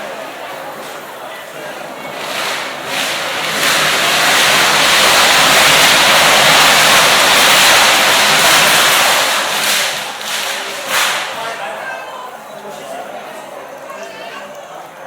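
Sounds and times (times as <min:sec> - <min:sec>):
fireworks hissing: 0:01.6 - 0:11.7.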